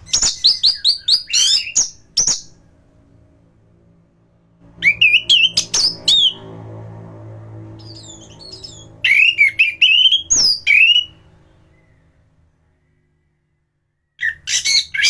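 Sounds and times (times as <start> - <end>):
faint low hum: 0.0 - 14.6
thrush singing whistled phrases: 4.8 - 6.4, 7.8 - 12.0.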